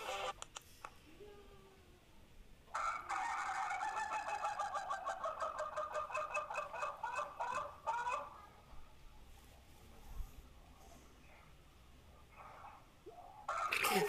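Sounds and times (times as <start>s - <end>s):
chicken calling in pulsing cry: 2.7s - 8.5s, 12.4s - 14.0s.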